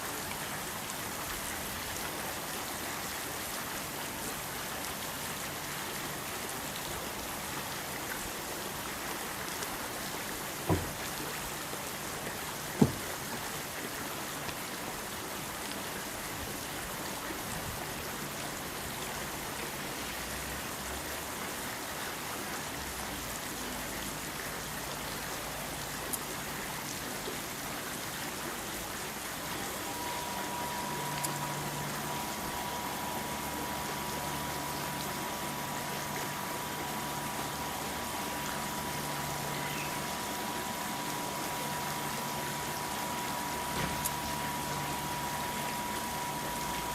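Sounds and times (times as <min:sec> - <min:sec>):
short sharp knocks: 0:10.7 - 0:11.0, 0:12.8 - 0:13.1
water hissing: 0:10.7 - 0:11.3.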